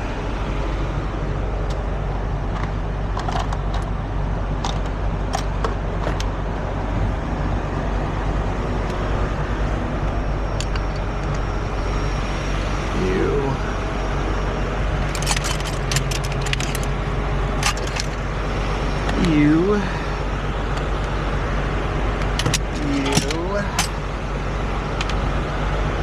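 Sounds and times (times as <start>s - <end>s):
diesel truck engine idling: 0.0s - 26.0s
sharp metallic clinks: 15.0s - 16.9s.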